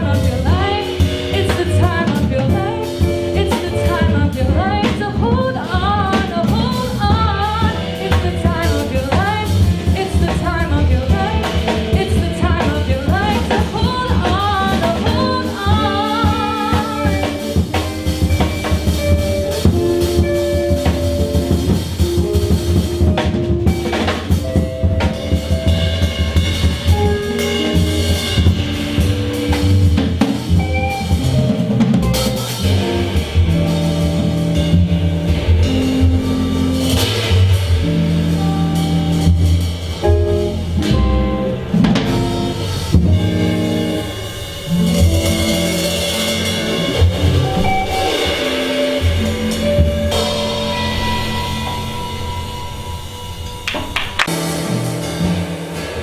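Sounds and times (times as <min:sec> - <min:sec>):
woman singing wordless lines: 0:00.0 - 0:17.4
jazz band playing: 0:00.0 - 0:56.0.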